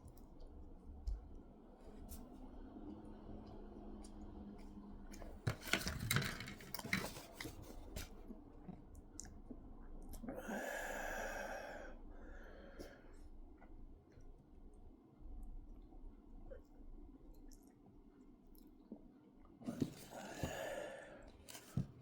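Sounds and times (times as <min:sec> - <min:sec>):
long breath: 0:10.4 - 0:13.2, 0:20.0 - 0:21.4.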